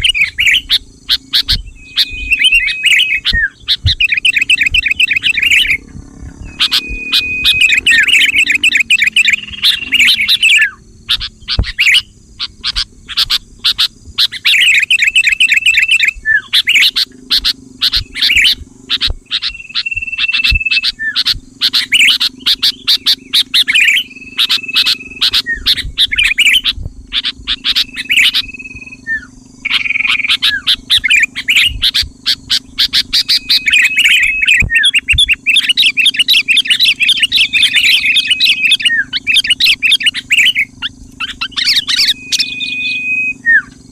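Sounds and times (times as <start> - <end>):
bird chirping and whistling: 0.0 - 43.9
faint low hum: 0.0 - 43.9.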